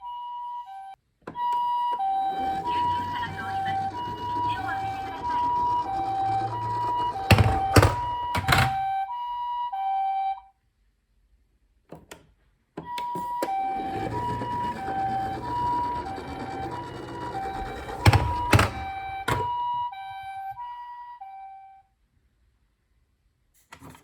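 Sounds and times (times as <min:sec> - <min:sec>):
toy siren two-tone: 0:00.0 - 0:10.6, 0:12.8 - 0:21.9
plastic knocks and clicks: 0:03.8 - 0:08.9, 0:12.8 - 0:19.6.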